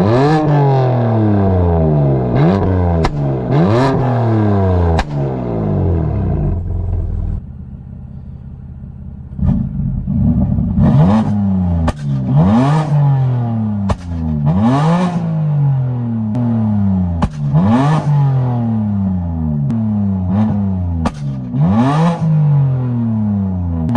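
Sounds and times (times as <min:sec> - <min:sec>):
car engine revving: 0:00.0 - 0:23.9
exhaust cracks and pops: 0:03.0 - 0:03.3, 0:04.9 - 0:05.3, 0:13.8 - 0:14.4, 0:17.2 - 0:17.6, 0:21.0 - 0:21.6.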